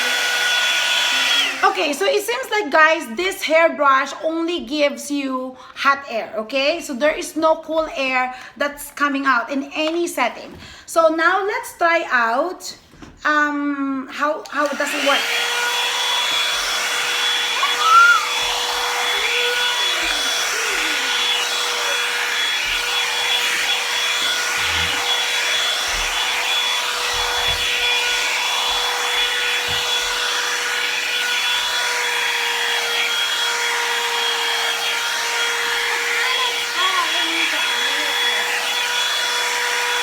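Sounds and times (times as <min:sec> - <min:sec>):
hair dryer motor whine: 0:00.0 - 0:02.1, 0:14.4 - 0:40.0.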